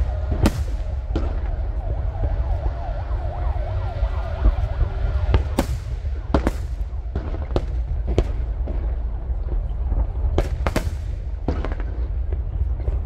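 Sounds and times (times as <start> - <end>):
fireworks whistling: 0.0 - 8.4
fireworks bangs: 0.0 - 13.0
fireworks rumble: 0.0 - 13.0.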